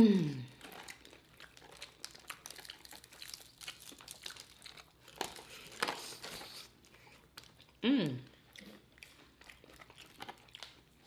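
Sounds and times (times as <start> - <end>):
chewing crispy chicken: 0.3 - 11.0.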